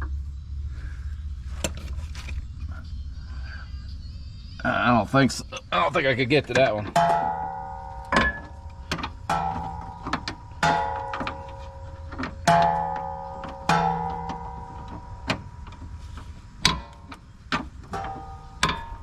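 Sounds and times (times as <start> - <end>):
metal tools clanking: 6.3 - 19.0.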